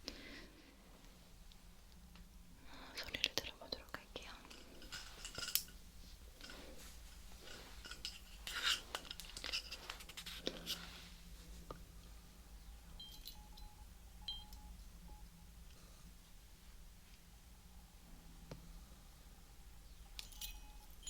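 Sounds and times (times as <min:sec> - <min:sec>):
faint metallic clinks: 0:03.0 - 0:11.0, 0:12.7 - 0:15.3, 0:19.8 - 0:21.0
stethoscope clicks and rustles: 0:04.2 - 0:10.9.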